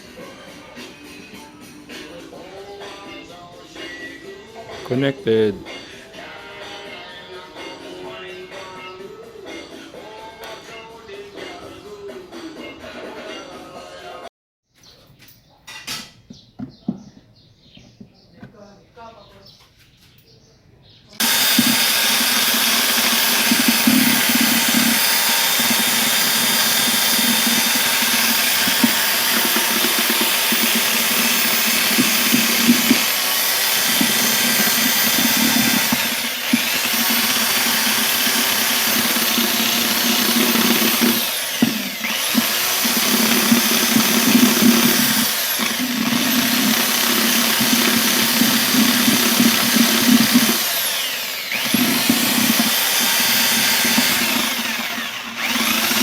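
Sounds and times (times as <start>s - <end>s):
power drill running: 21.2s - 56.0s.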